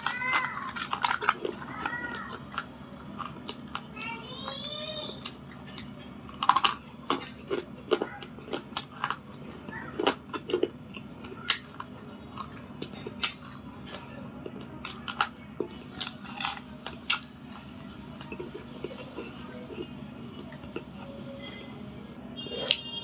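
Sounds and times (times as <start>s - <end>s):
chewing crunches and cracks: 0.0s - 21.6s, 22.6s - 22.8s
faint low hum: 0.0s - 23.0s.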